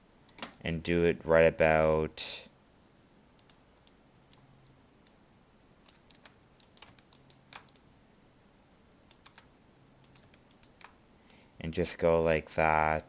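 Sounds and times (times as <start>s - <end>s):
low background hum: 0.0s - 13.0s
keyboard and mouse clicks: 0.1s - 0.6s, 3.4s - 5.2s, 5.8s - 7.9s, 9.1s - 11.4s.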